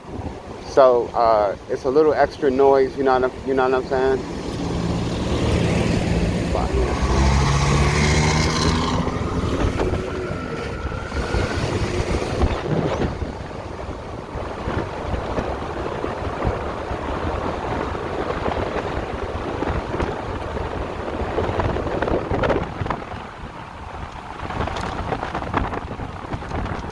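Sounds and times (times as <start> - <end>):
wind buffeting microphone: 0.0 - 26.9
electric motor whine rising: 4.4 - 13.5.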